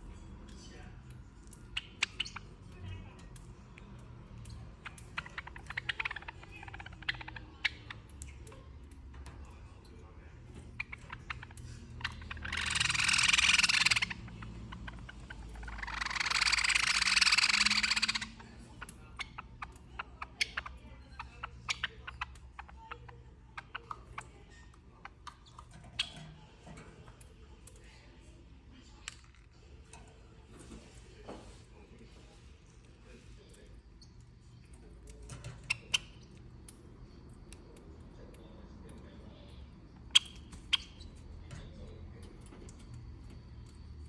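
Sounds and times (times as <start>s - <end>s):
bird rasping begging calls: 12.4s - 14.2s, 15.6s - 18.4s.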